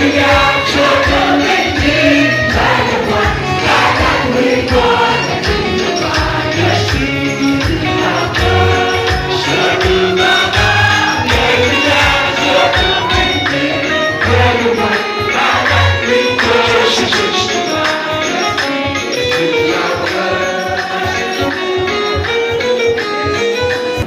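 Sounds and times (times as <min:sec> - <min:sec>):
steady beat: 0:00.0 - 0:17.6
group of voices singing gospel: 0:00.0 - 0:22.3.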